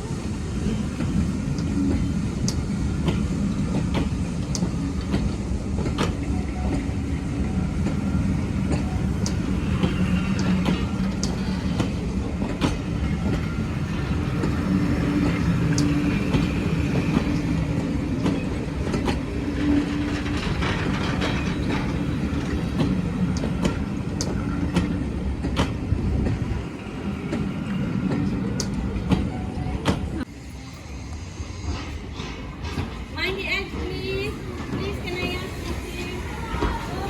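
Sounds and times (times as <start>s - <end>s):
train rumbling along track: 0.0s - 37.0s
wheels clicking over rail joints: 0.8s - 30.3s.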